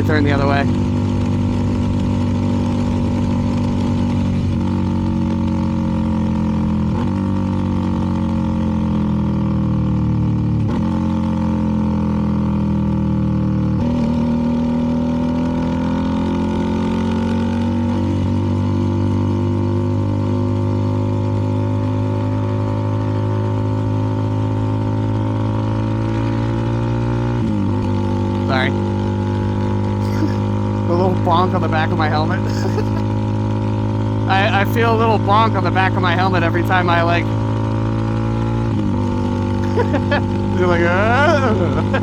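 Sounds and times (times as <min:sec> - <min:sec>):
motorcycle engine riding: 0:00.0 - 0:42.0.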